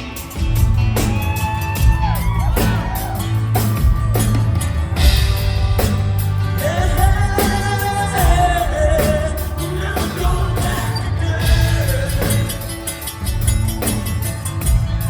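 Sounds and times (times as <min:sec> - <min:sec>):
live rock band playing: 0:00.0 - 0:15.0
person singing lead vocal: 0:06.4 - 0:13.4.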